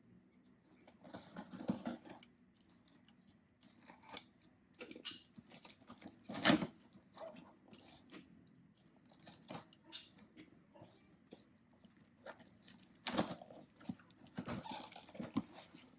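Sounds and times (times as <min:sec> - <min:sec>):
plastic and paper crackling: 0:12.1 - 0:15.9.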